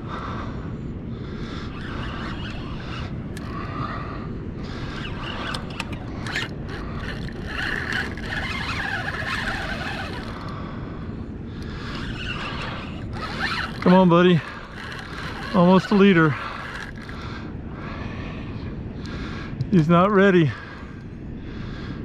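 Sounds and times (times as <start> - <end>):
steady low rumble: 0.0 - 9.0, 10.2 - 22.0
fishing reel cranking: 1.4 - 3.8, 4.6 - 10.5, 11.6 - 17.4.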